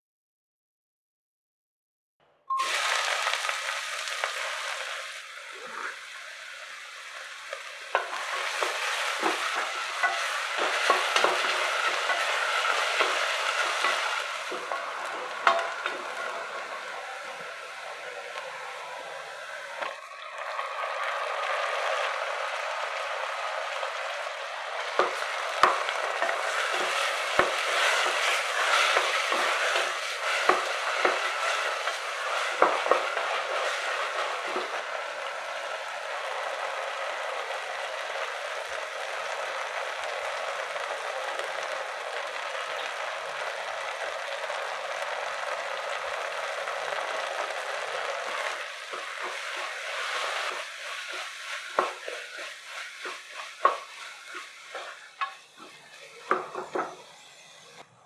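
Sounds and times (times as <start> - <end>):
vegetables sizzling in a pot: 2.5 - 58.0
spatula knocking and scraping pot: 7.9 - 16.1, 25.0 - 34.8, 48.9 - 57.1.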